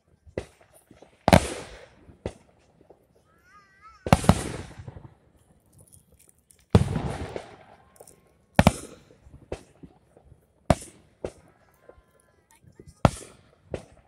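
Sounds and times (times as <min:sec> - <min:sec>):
firework shells booming: 0:00.3 - 0:03.2, 0:03.9 - 0:05.6, 0:06.7 - 0:14.0.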